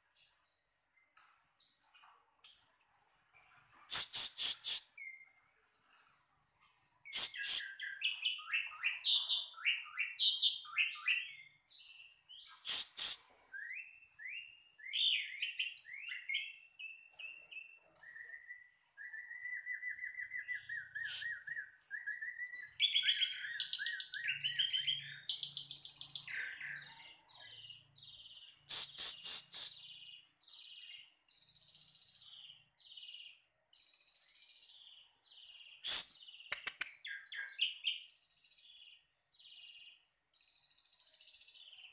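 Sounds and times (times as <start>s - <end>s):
songbird singing: 6.6s - 41.9s
sharp clicks: 36.5s - 37.0s.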